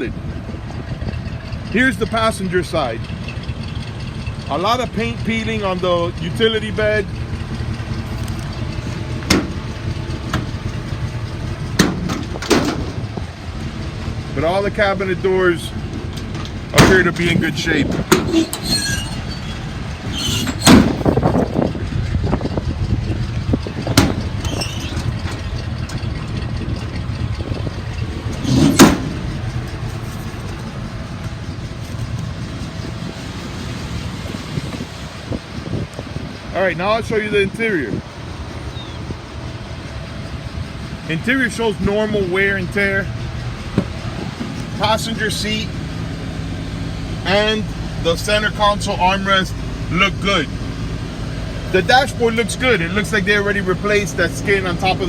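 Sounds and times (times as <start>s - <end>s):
truck engine idling: 0.0s - 55.0s
sharp engine knocks: 7.8s - 13.4s, 15.8s - 33.6s, 43.6s - 45.2s.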